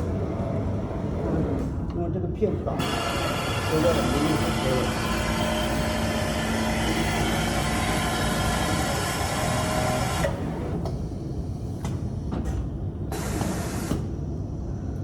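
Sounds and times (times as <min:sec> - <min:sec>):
sewing machine running: 0:02.8 - 0:10.7.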